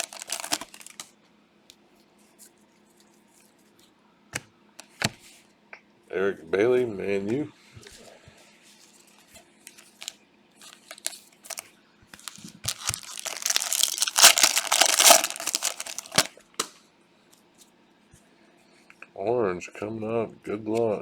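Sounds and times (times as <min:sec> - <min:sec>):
plastic wrapper crinkling and tearing: 0:00.0 - 0:01.1, 0:09.7 - 0:16.3.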